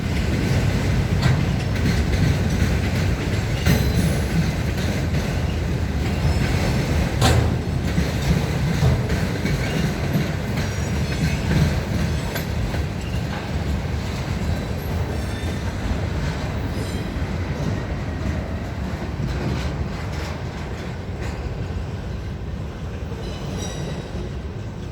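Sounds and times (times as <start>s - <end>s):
train wheels rumbling on rail: 0.0s - 24.9s.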